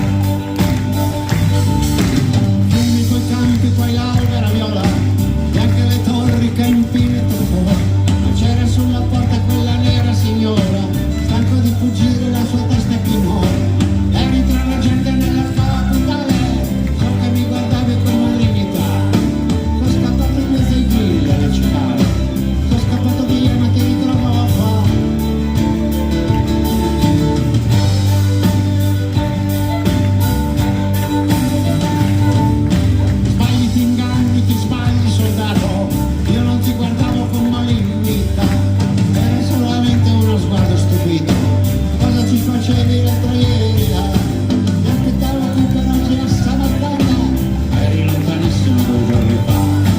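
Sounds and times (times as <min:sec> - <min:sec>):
bass: 0:00.0 - 0:49.9
drums: 0:00.0 - 0:49.9
guitar: 0:00.0 - 0:49.9
live rock band playing: 0:00.0 - 0:49.9.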